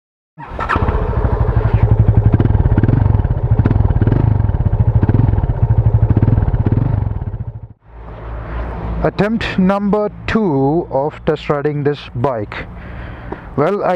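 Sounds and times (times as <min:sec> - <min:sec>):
motorcycle engine running: 0:00.4 - 0:07.8.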